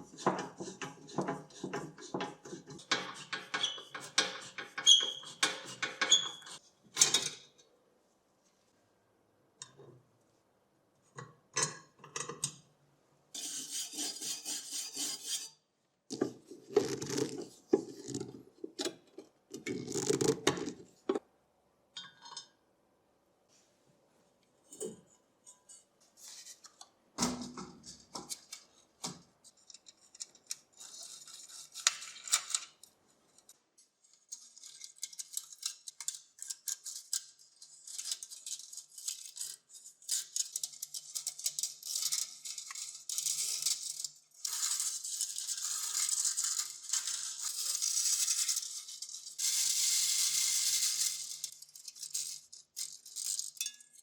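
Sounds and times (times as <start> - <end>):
scraping and rubbing metal: 0.0 - 6.6, 13.4 - 15.6, 34.1 - 54.0
steady rasp: 0.0 - 6.6, 13.4 - 15.5.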